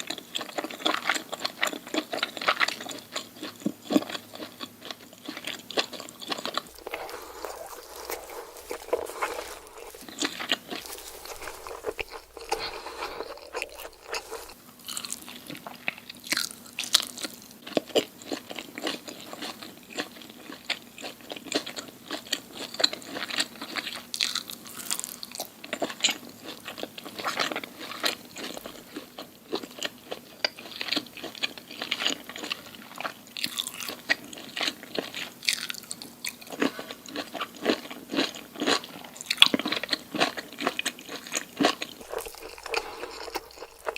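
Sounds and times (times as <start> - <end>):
crunchy food being chewed: 0.0 - 43.9.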